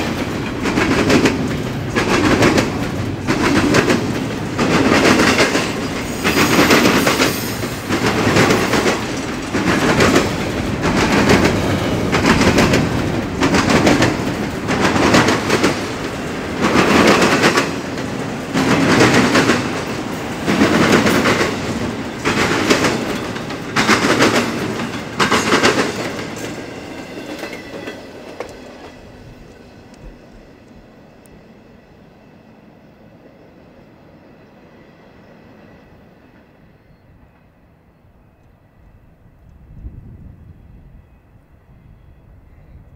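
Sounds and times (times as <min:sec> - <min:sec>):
freight train wheels clattering: 0:00.0 - 0:30.9.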